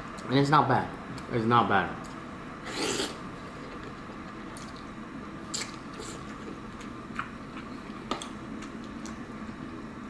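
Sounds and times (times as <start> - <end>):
person chewing noodles: 2.7 - 3.8, 5.5 - 7.9.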